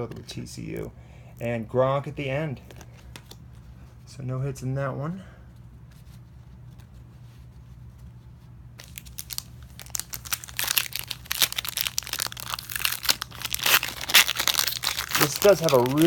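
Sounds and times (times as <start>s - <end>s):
low steady hum: 0.0s - 16.0s
wrapper crinkling and tearing: 8.8s - 16.0s.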